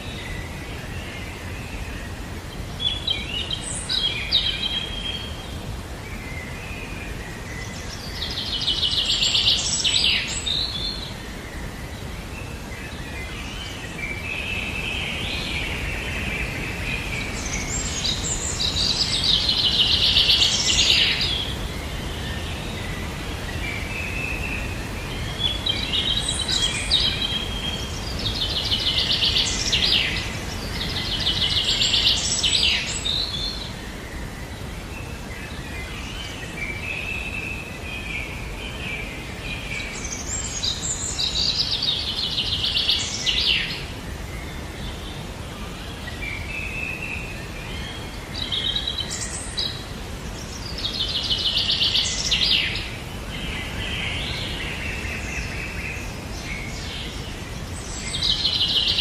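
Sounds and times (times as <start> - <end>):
low background noise: 0.0 - 59.0
songbirds trilling: 0.0 - 59.0.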